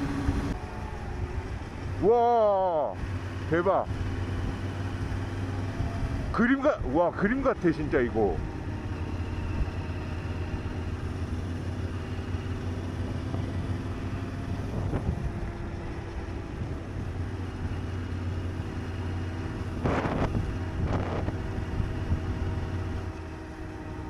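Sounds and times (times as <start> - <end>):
motorcycle engine running: 0.0 - 24.0
wind rushing over microphone: 3.9 - 17.8, 18.7 - 23.3.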